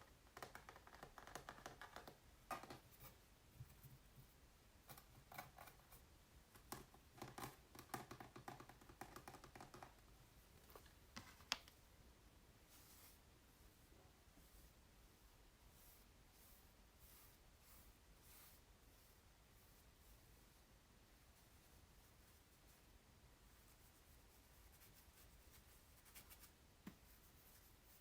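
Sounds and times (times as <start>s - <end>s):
fingers tapping on canvas: 0.2s - 2.8s, 6.7s - 10.0s.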